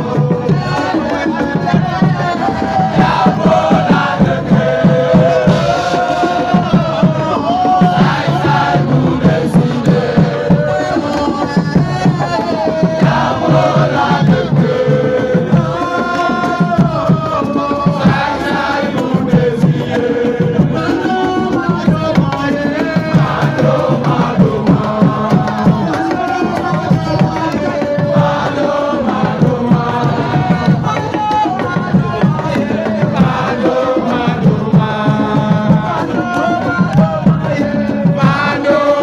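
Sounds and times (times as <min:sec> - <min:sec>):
crowd singing and chanting: 0:00.0 - 0:39.0
fast hand drumming: 0:00.0 - 0:39.0.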